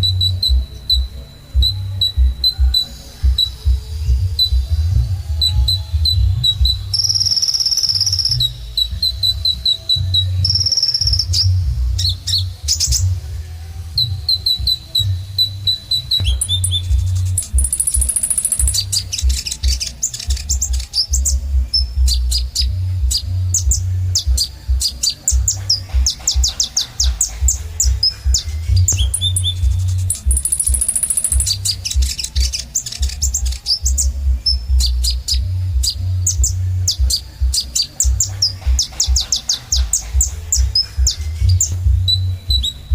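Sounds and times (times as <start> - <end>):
steady low rumble: 0.0 - 7.4, 8.0 - 42.9
sunbird chirping and trilling: 0.0 - 42.9
low rumble: 40.1 - 42.9.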